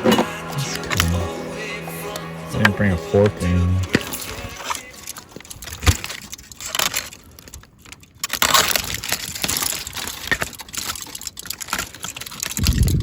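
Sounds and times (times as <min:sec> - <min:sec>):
aluminium foil crinkling: 0:04.0 - 0:13.0
small clicks: 0:04.0 - 0:13.0.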